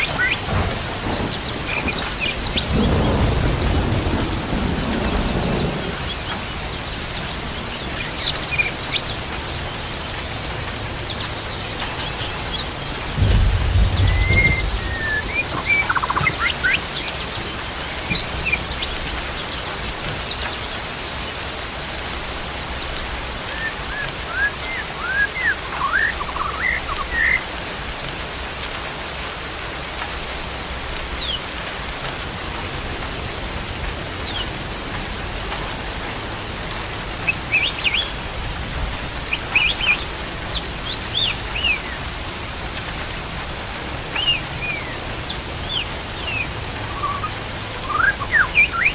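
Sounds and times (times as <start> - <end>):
songbirds whistling and chirping: 0.0 - 10.2, 11.0 - 20.8, 22.8 - 27.5, 37.2 - 38.2, 39.3 - 42.1, 44.1 - 48.9.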